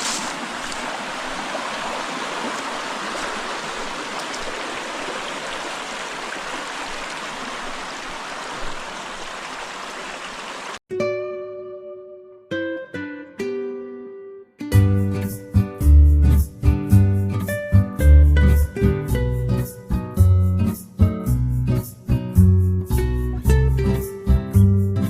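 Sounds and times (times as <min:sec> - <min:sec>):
stream running over rocks: 0:00.0 - 0:10.8
plucked string music: 0:10.9 - 0:25.0.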